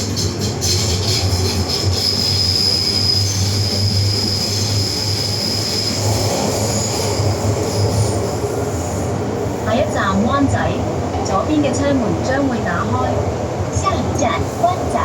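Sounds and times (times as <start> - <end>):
train wheels squealing on rails: 0.0 - 9.8
train running gear rumble: 0.0 - 15.0.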